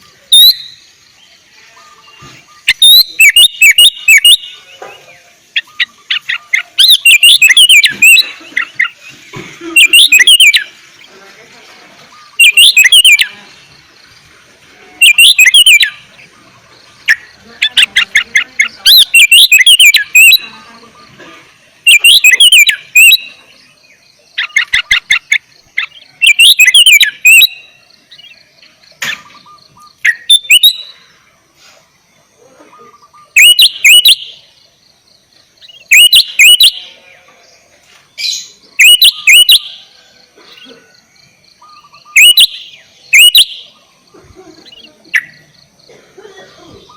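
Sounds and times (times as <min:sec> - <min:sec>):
bulbul singing: 0:00.0 - 0:31.4, 0:32.2 - 0:46.9.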